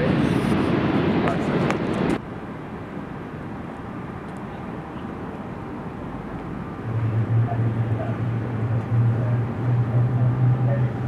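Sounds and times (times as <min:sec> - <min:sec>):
airliner engine rushing: 0:00.0 - 0:11.0
loud wavering low hum: 0:05.9 - 0:11.0.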